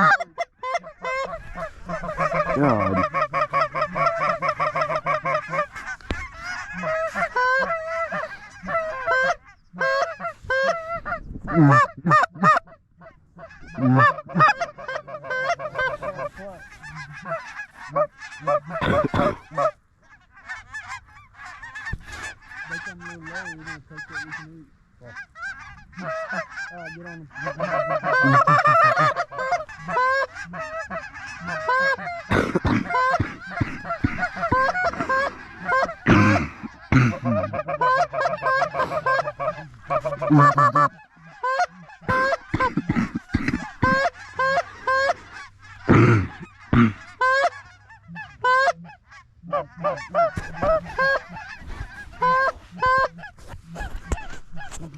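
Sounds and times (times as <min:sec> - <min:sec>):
geese honking: 0:00.0 - 0:54.9.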